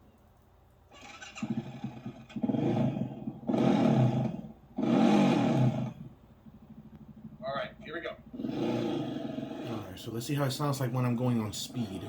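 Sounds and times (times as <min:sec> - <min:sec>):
atv engine revving: 0:01.0 - 0:09.9.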